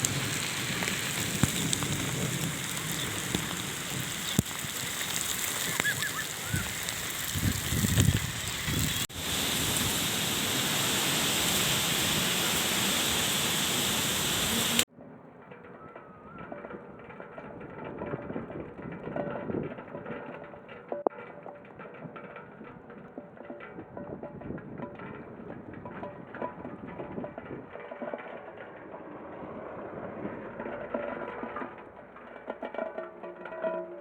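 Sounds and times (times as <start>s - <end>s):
heavy rain pattering: 0.0s - 14.9s
sharp drips: 0.0s - 14.9s
wind buffeting microphone: 0.0s - 14.9s, 16.2s - 20.6s, 21.9s - 32.0s.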